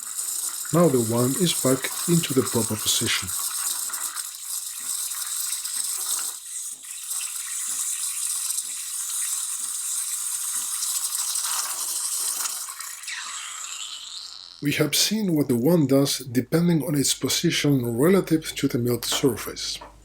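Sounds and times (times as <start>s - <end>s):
steam wand hissing into water: 0.0s - 14.7s.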